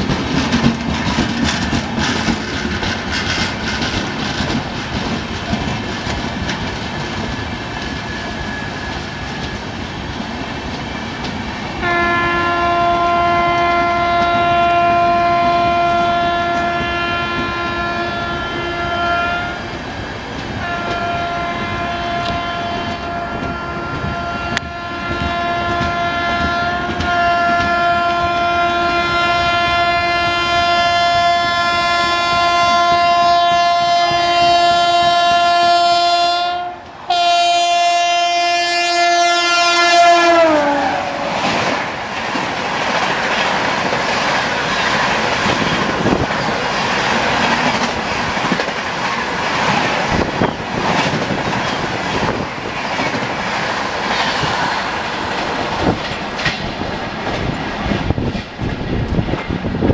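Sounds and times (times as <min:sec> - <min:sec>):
locomotive horn blast: 0:11.8 - 0:19.7, 0:20.6 - 0:41.8.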